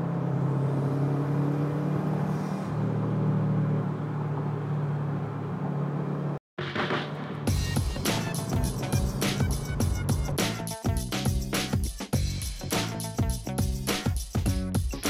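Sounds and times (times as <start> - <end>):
car engine from inside cabin: 0.0 - 6.4, 7.9 - 10.3
music with steady beat: 6.6 - 15.0.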